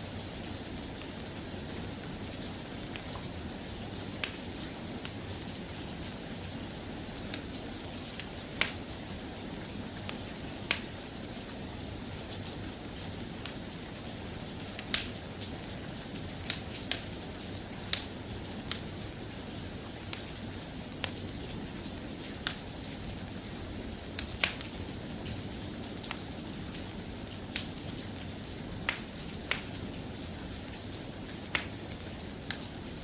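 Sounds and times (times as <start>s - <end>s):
soft steady rain: 0.0s - 33.0s
sharp ticks and pops: 28.9s - 29.8s, 31.5s - 31.8s.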